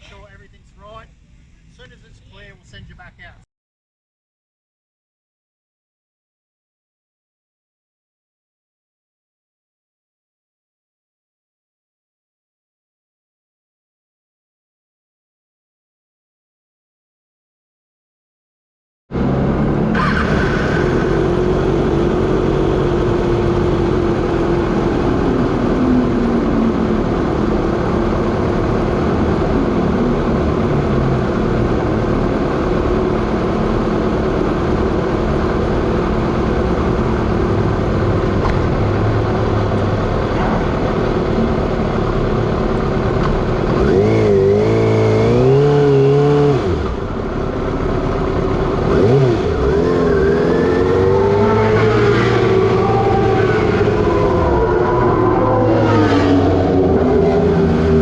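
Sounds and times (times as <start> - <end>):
motorcycle engine at speed: 19.1 - 58.0.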